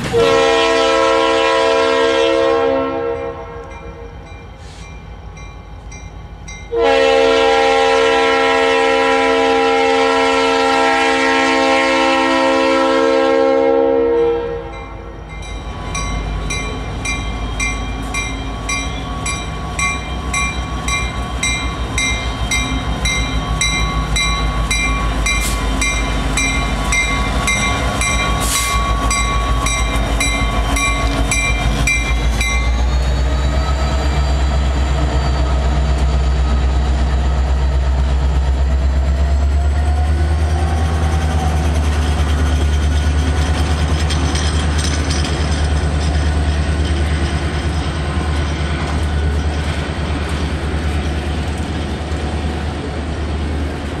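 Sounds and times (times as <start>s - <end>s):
train horn: 0.0s - 4.2s, 6.7s - 15.2s
rumble of passing freight train: 0.0s - 54.0s
bell ringing: 14.8s - 32.8s.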